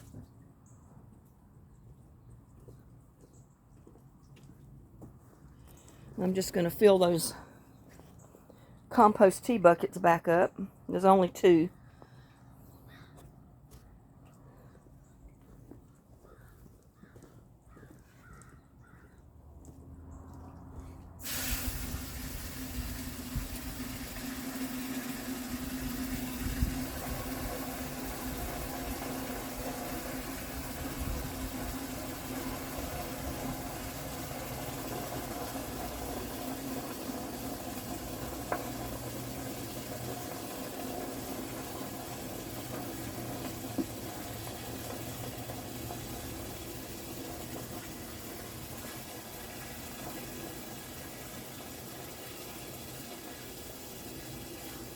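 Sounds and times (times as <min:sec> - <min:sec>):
water running into a bucket: 0:20.6 - 0:54.9.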